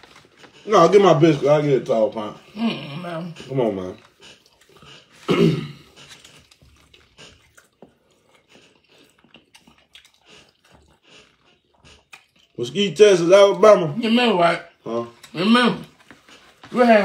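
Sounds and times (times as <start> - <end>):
person chewing food: 0.0 - 13.9, 14.6 - 17.0
mouth clicks and smacks: 5.9 - 12.6.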